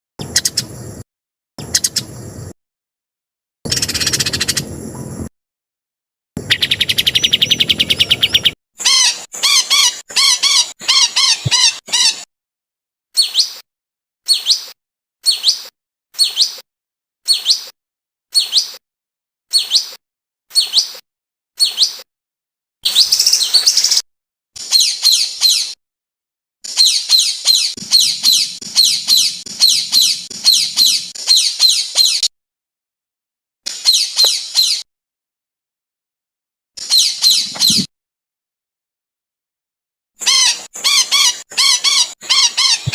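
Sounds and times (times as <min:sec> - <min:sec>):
sharp bird calls: 0:00.2 - 0:00.7, 0:01.6 - 0:02.1, 0:03.7 - 0:04.7, 0:06.4 - 0:12.3, 0:13.2 - 0:13.6, 0:14.2 - 0:16.6, 0:17.2 - 0:18.8, 0:19.5 - 0:21.0, 0:21.6 - 0:22.1, 0:22.8 - 0:24.0, 0:24.6 - 0:25.8, 0:26.6 - 0:32.3, 0:33.7 - 0:34.9, 0:36.8 - 0:37.9, 0:40.2 - 0:42.9
high chattering birdsong: 0:00.2 - 0:00.9, 0:01.6 - 0:02.3, 0:03.7 - 0:05.2, 0:06.4 - 0:12.2, 0:13.2 - 0:13.6, 0:14.3 - 0:16.6, 0:17.2 - 0:18.8, 0:19.5 - 0:21.0, 0:21.6 - 0:22.1, 0:22.8 - 0:24.0, 0:24.6 - 0:25.8, 0:26.6 - 0:32.3, 0:33.7 - 0:34.9, 0:36.8 - 0:37.9, 0:40.3 - 0:42.9
bird rattling trill: 0:03.7 - 0:04.7, 0:06.5 - 0:12.2, 0:26.7 - 0:32.2, 0:40.2 - 0:42.9.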